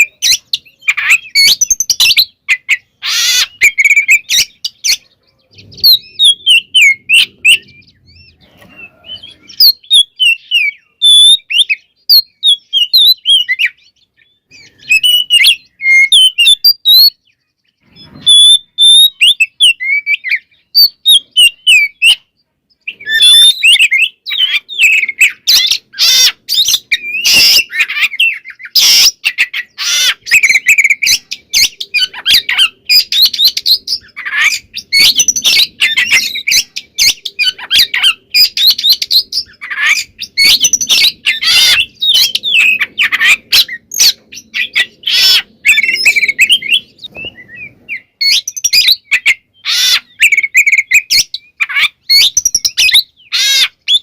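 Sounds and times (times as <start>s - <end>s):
bird singing whistled phrases: 0.0s - 17.4s, 18.2s - 22.3s, 22.9s - 54.0s
bird harsh rasping calls: 0.0s - 54.0s.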